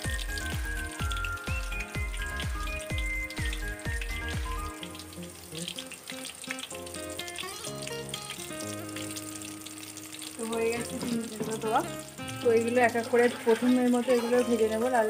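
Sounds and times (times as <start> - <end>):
background music with low bass: 0.0 - 5.6
chicken deep-frying in hot oil: 0.0 - 15.0.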